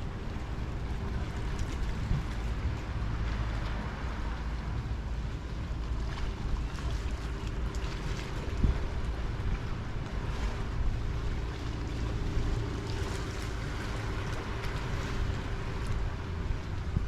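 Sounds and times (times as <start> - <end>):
sea water washing against shore: 0.0 - 17.0
wind buffeting microphone: 0.0 - 17.0.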